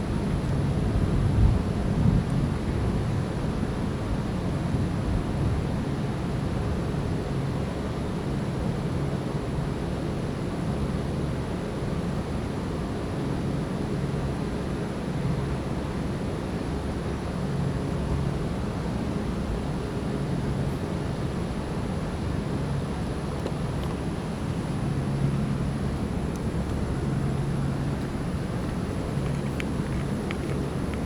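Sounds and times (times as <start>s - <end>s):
wind rumbling on microphone: 22.9s - 31.0s.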